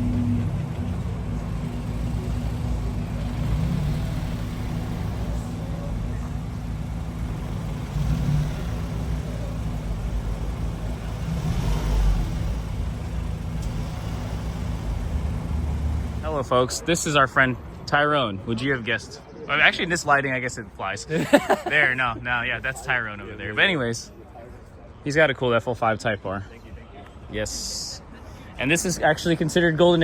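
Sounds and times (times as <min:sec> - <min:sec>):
car engine running: 0:00.0 - 0:16.5.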